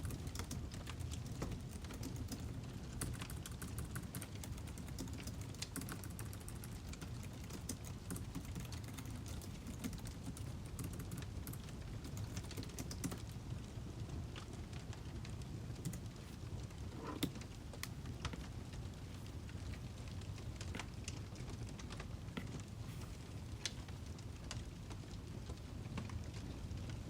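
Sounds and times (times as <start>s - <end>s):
firewood crackling: 0.0s - 27.0s
low fire rumble: 0.0s - 27.0s.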